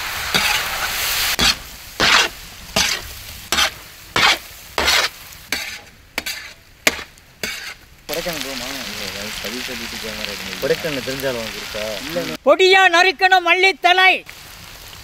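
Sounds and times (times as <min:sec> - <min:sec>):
prawns sizzling in a pan: 0:00.0 - 0:12.4, 0:13.9 - 0:15.0
stirring in a pan: 0:00.2 - 0:10.0.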